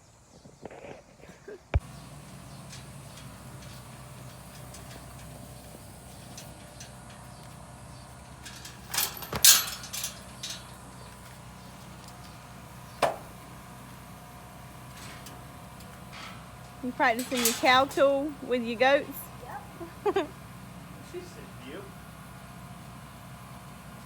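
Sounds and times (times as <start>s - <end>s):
low mechanical hum: 0.0s - 24.0s
sharp clattering knocks: 12.9s - 13.5s, 14.9s - 19.2s.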